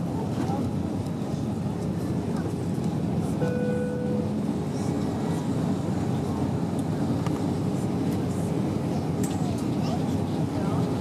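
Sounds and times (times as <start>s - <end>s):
airplane cabin roar: 0.0s - 11.0s
short pitched tone: 3.4s - 4.4s.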